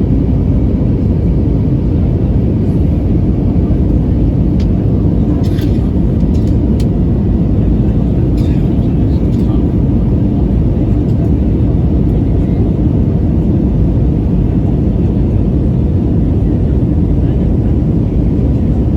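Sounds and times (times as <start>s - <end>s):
airplane engines and airflow: 0.0s - 18.9s.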